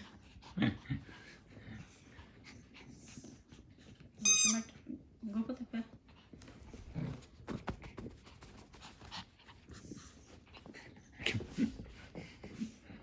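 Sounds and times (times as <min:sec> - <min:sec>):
dog panting: 0:00.0 - 0:04.2, 0:05.9 - 0:13.0.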